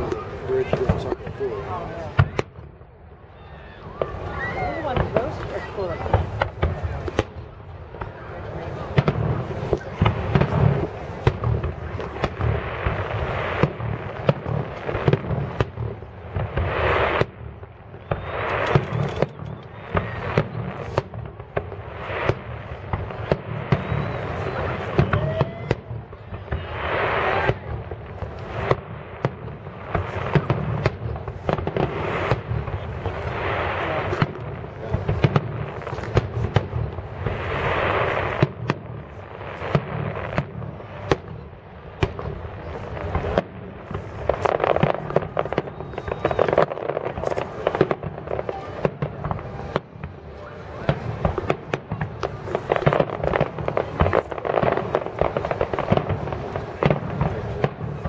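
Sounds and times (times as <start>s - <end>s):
fireworks shells bursting: 18.0s - 25.3s.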